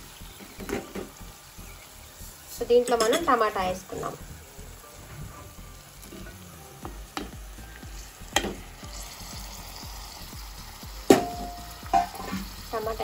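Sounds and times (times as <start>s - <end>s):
beans frying in oil: 0.0s - 13.0s
low sizzle: 0.0s - 13.0s
spoon knocking on pot: 8.4s - 8.6s.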